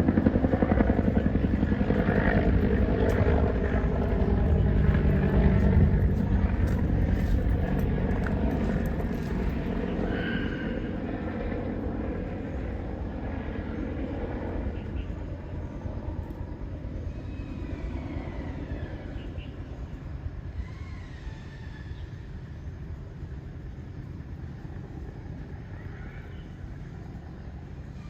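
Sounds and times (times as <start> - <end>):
aircraft rumbling overhead: 0.0 - 28.0.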